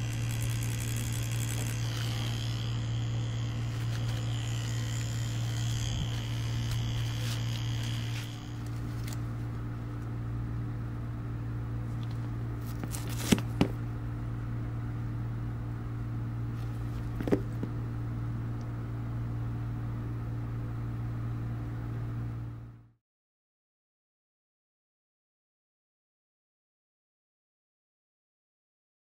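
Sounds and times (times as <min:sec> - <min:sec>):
tattoo machine buzzing: 0:00.0 - 0:09.6, 0:12.6 - 0:13.8.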